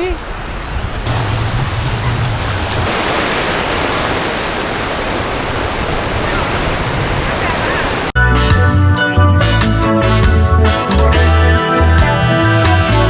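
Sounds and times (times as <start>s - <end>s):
ocean surf roaring: 0.0s - 8.2s
wind on the shore: 0.0s - 8.2s.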